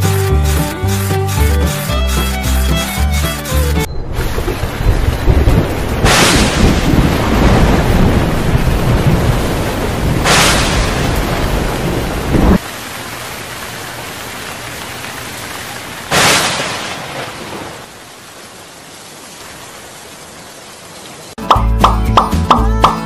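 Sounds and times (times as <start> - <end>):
heavy rain: 3.9 - 21.4
sharp thunderclaps: 4.1 - 12.6.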